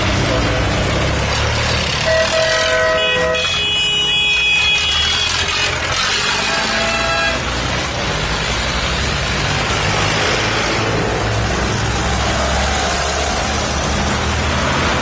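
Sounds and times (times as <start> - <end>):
tractor engines droning: 0.0 - 15.0
horn tone: 2.0 - 7.4.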